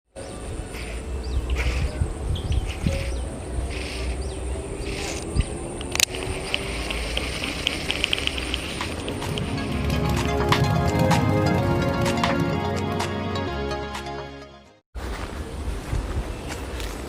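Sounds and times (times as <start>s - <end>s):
quick run of ticks: 4.8s - 10.3s.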